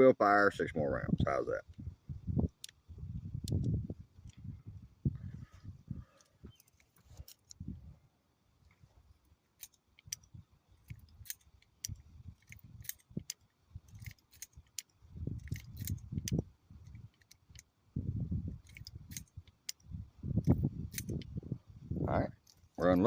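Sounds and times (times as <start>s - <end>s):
revolver metallic clicks: 9.6s - 17.7s, 18.6s - 21.3s.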